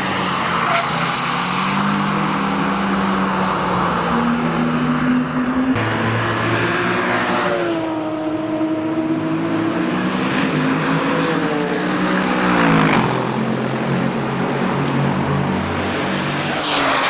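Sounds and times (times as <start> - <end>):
loud car engine revving: 0.0 - 17.0.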